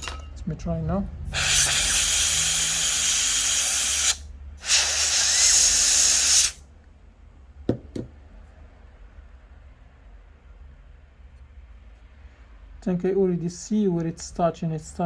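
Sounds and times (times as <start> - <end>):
cooling fan spinning: 1.0 - 6.6
canned air bursts: 1.3 - 6.6.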